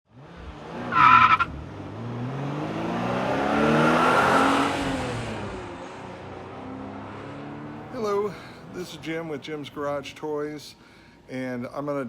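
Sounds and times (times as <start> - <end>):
car engine revving: 0.1 - 9.4.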